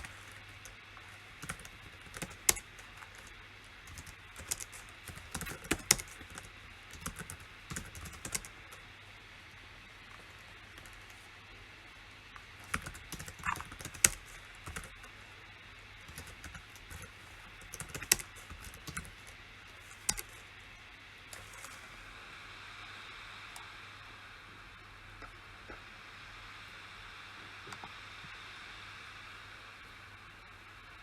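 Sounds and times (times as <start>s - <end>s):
faint steady hiss: 0.0s - 31.0s
keyboard key clicks: 1.4s - 3.3s, 3.9s - 8.5s, 12.6s - 14.9s, 16.1s - 20.4s.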